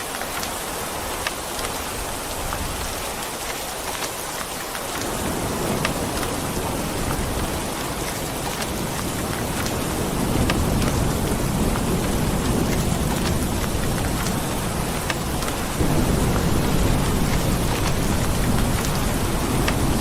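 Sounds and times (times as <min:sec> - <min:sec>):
heavy rain: 0:00.0 - 0:20.0
thunder rumbling: 0:05.0 - 0:20.0.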